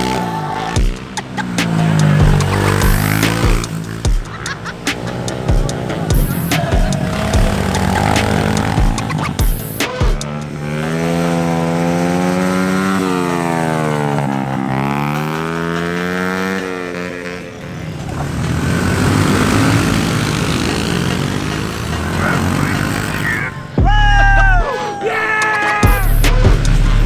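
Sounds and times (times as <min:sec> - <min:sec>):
rough noisy engine: 0:00.0 - 0:24.7, 0:25.6 - 0:27.0
pit bike engine running: 0:00.0 - 0:24.8, 0:25.7 - 0:27.0.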